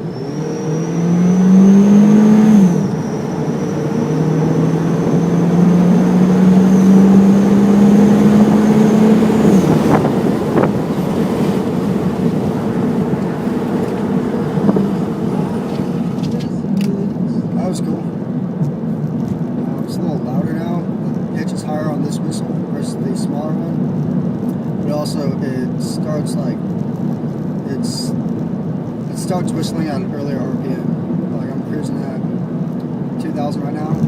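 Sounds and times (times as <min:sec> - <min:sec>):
high turbo whistle: 0:00.0 - 0:16.4
car engine revving: 0:00.0 - 0:34.0.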